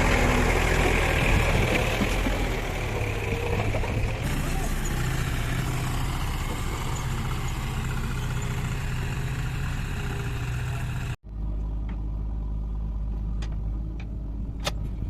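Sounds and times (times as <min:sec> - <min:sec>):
heavy diesel engine running: 0:00.0 - 0:11.2
engine with deeper hum: 0:00.0 - 0:15.0.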